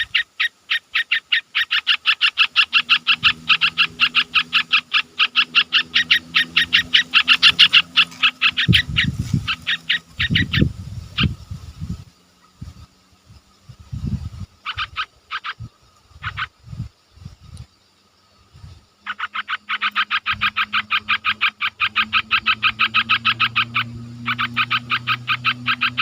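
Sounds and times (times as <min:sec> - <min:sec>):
bird call notes: 0:00.0 - 0:11.3, 0:19.0 - 0:26.0
low rumbling bursts: 0:02.8 - 0:14.6.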